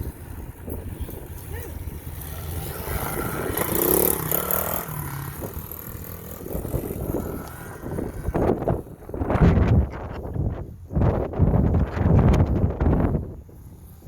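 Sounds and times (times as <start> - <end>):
small motorcycle engine running: 0.0 - 10.2.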